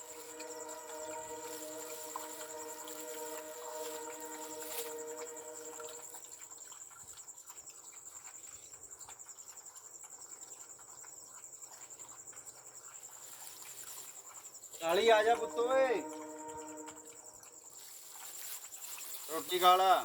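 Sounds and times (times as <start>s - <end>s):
faint hum: 0.0s - 6.2s, 14.9s - 17.5s
crickets chirping: 0.0s - 6.3s, 12.8s - 20.0s.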